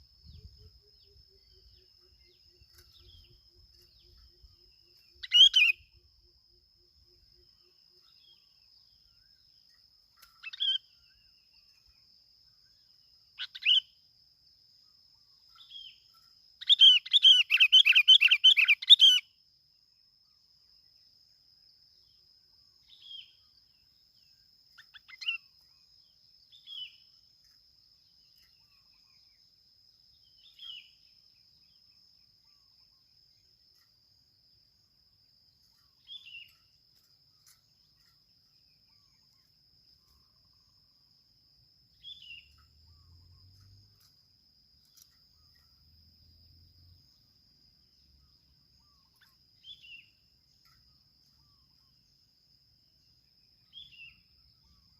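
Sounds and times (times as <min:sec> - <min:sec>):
bird calling: 0:05.2 - 0:05.8, 0:16.6 - 0:19.2.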